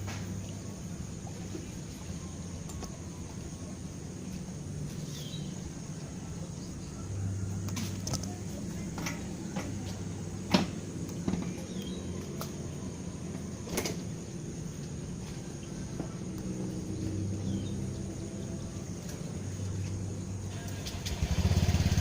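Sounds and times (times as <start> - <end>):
low engine-like hum: 0.0 - 22.0.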